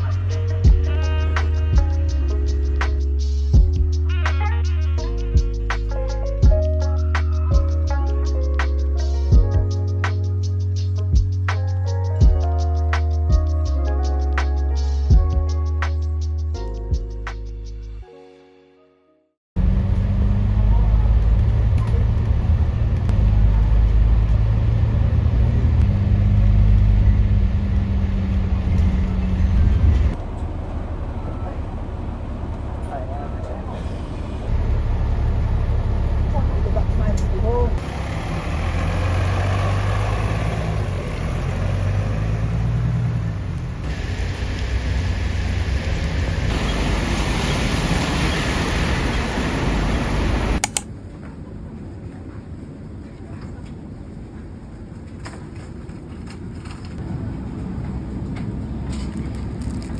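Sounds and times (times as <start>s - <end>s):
vehicle engine rumble: 0.0s - 17.9s, 19.6s - 53.4s, 54.0s - 59.9s
heavy rain: 37.8s - 50.6s
sharp clicks: 50.6s - 50.9s.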